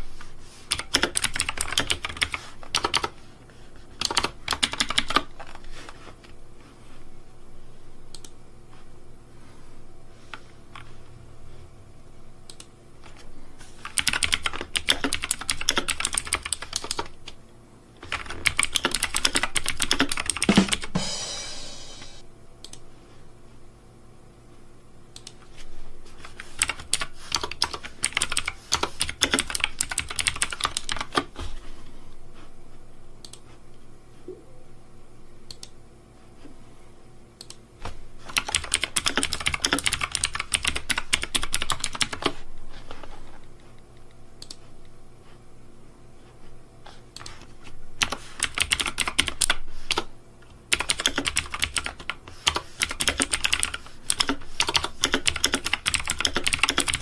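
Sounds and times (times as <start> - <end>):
keyboard typing clicks: 0.7 - 3.1, 8.1 - 8.4, 12.5 - 12.7, 13.8 - 17.1, 44.0 - 44.6, 48.0 - 50.1, 50.7 - 57.0.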